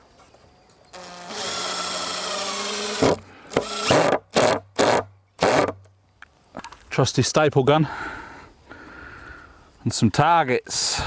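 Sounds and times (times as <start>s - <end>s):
power drill driving screw into wood: 0.9s - 5.8s.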